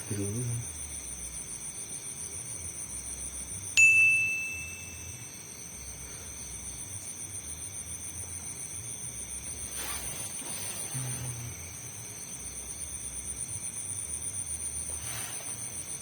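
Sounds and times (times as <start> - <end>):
crickets chirping: 0.0 - 16.0
small bell ding: 3.8 - 5.5.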